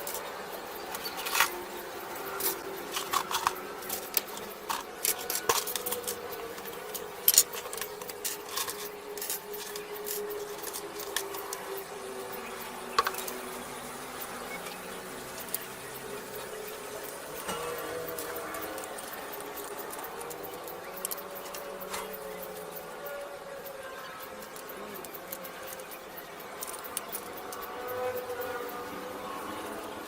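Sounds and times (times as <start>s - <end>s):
clicks of small hard objects: 0.0s - 11.8s, 16.5s - 28.6s.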